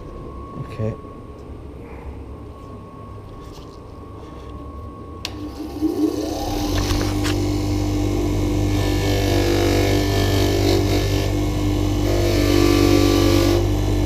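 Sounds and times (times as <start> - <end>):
wire wheel whining: 5.2 - 14.0.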